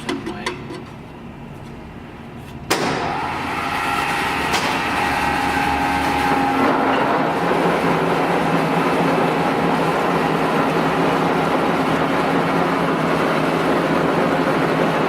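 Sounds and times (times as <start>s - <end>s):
lathe running with whine: 3.1s - 15.0s.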